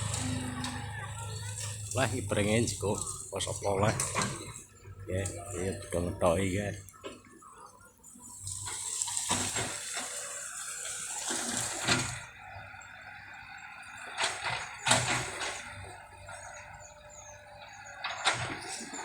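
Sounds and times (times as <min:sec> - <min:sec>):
rustling of bamboo stems and leaves: 0:00.0 - 0:07.5, 0:08.2 - 0:19.0.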